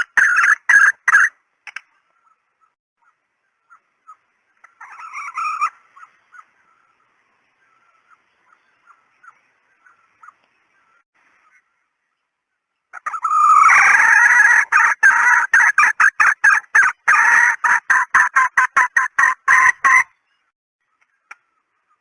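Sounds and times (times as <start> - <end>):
harsh hen cackle: 0.0 - 1.4, 3.7 - 6.5, 12.9 - 20.1.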